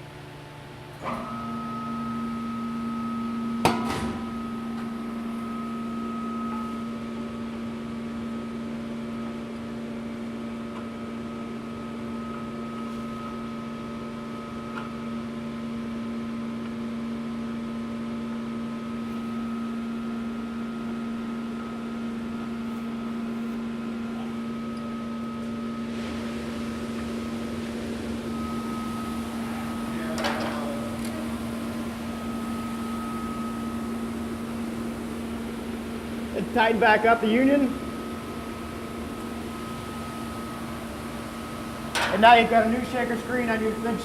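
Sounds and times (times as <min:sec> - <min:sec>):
machine hum: 0:00.0 - 0:44.0.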